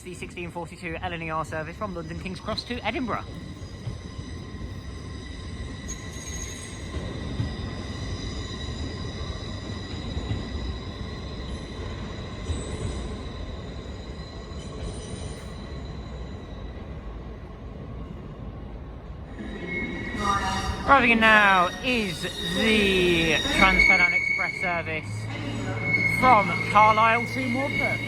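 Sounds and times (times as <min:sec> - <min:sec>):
train wheels rumbling: 0:00.0 - 0:28.0
electric train high-pitched whine: 0:19.3 - 0:28.0.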